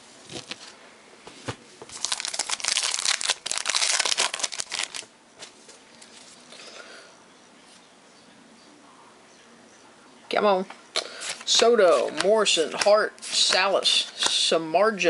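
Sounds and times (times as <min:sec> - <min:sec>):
plastic wrapper crinkling: 0:01.9 - 0:05.1.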